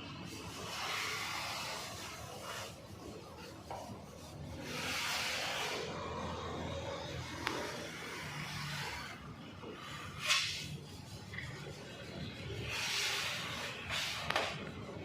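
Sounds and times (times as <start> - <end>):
hand scraping body filler: 7.4 - 14.7.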